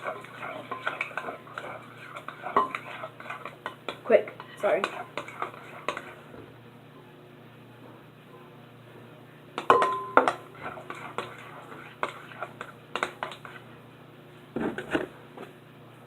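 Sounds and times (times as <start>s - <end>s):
spoon clinking against bowl: 9.6s - 10.5s.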